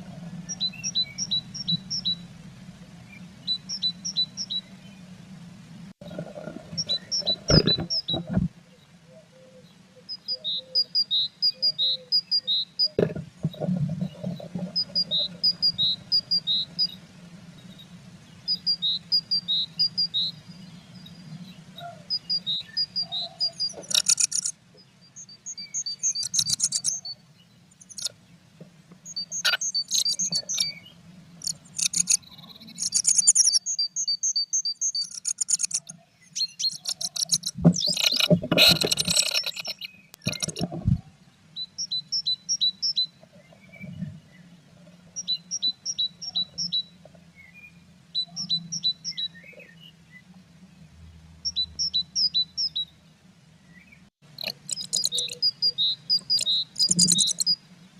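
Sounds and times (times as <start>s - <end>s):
low steady hum: 0.0s - 57.9s
knocks and rustles: 7.4s - 8.6s, 13.0s - 14.8s, 37.0s - 41.0s
buzzy bird chattering: 22.1s - 24.5s, 25.8s - 27.1s, 27.8s - 28.1s, 29.2s - 30.8s, 31.4s - 35.9s, 36.6s - 40.7s, 54.4s - 57.6s.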